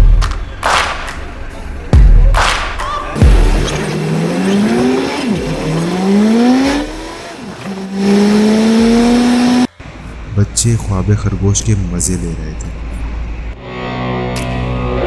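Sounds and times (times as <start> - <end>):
car engine accelerating: 3.1 - 10.4.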